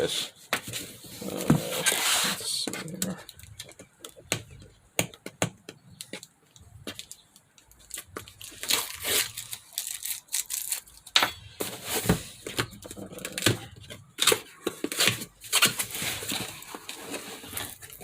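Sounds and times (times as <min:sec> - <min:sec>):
cardboard tearing: 0:00.7 - 0:03.4, 0:07.9 - 0:11.0, 0:11.6 - 0:18.0
box rustling and clicking: 0:11.6 - 0:18.0.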